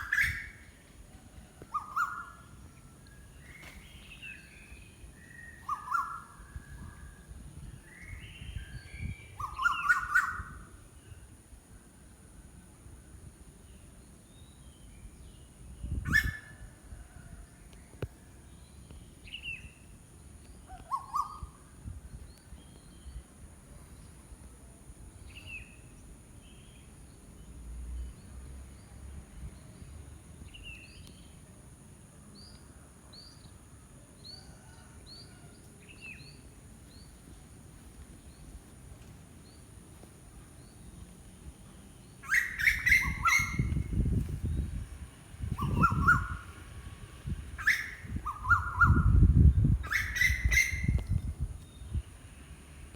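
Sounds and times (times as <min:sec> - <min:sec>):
birds chirping: 0:01.7 - 0:06.9, 0:36.1 - 0:46.6, 0:47.6 - 0:52.1
loud bird call: 0:42.2 - 0:44.0, 0:45.5 - 0:46.6, 0:47.6 - 0:49.2.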